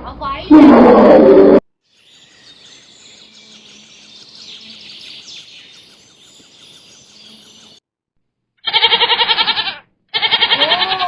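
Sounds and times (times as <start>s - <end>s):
birds chirping: 1.9s - 7.8s.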